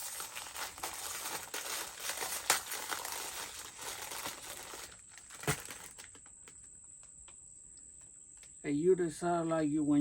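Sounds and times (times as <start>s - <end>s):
plastic crinkling and rustling: 0.0s - 6.8s.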